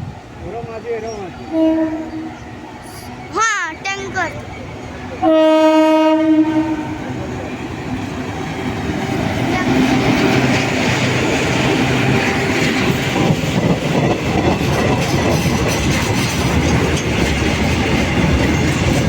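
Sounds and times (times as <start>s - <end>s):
train wheels clattering over rail joints: 7.6s - 19.0s.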